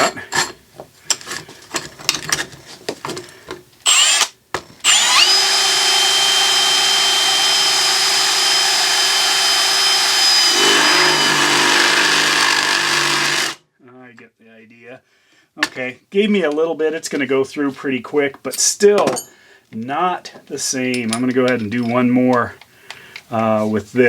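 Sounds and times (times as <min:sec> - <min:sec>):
drill bit cutting workpiece: 0:03.9 - 0:13.6
power drill whining: 0:03.9 - 0:13.6.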